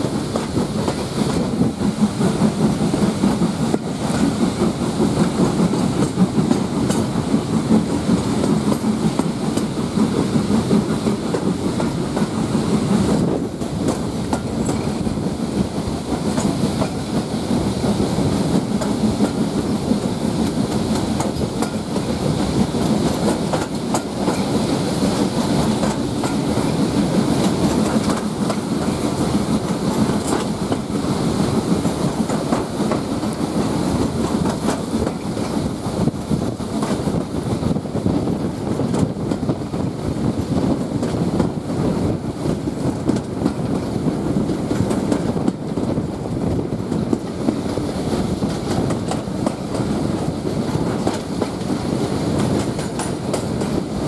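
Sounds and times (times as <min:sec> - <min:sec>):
clickety-clack over rail joints: 0:00.0 - 0:54.0
rushing air: 0:00.0 - 0:54.0
train wheels rumbling on rail: 0:00.0 - 0:54.0.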